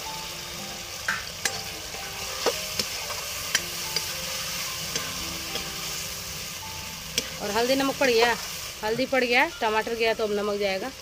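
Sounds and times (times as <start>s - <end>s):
food sizzling in oil: 0.0s - 11.0s
metal spatula scraping a wok: 1.4s - 9.2s.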